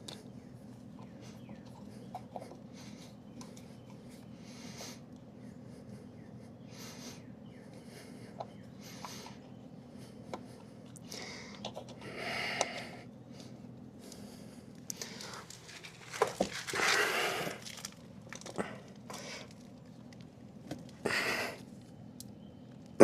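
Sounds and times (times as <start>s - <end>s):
faint clicks and handling noises: 0.0s - 4.3s, 10.2s - 21.0s.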